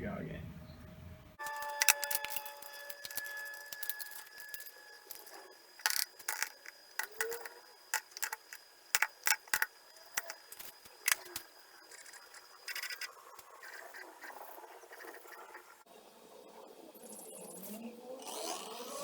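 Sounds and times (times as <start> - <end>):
high-pitched whine: 0.6 - 17.9
sharp clicks and knocks: 1.4 - 11.5.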